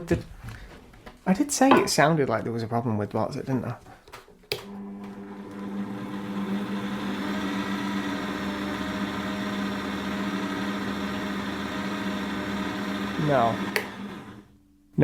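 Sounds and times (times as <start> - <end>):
drill motor humming: 5.0 - 14.5.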